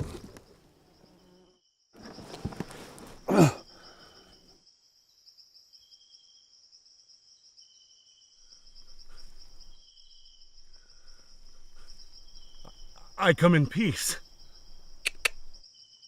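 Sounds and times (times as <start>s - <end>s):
insect trilling: 8.4s - 15.9s.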